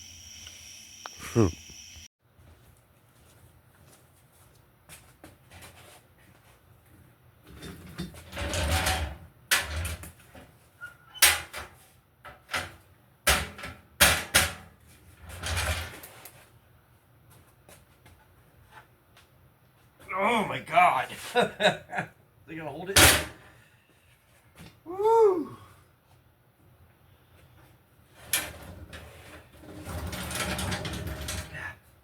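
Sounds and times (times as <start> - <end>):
rustling and scraping: 2.6 - 8.6, 14.8 - 16.6, 27.3 - 31.6.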